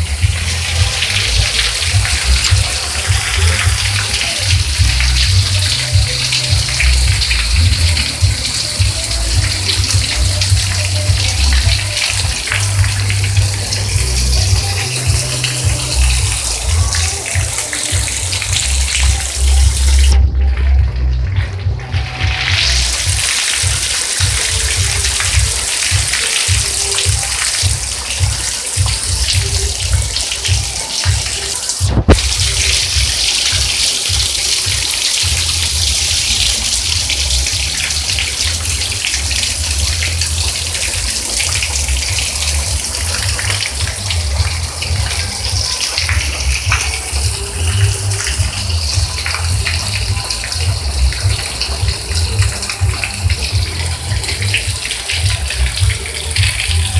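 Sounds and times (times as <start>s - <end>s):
heavy rain pouring: 0.0s - 56.9s
low rumble: 18.5s - 23.0s.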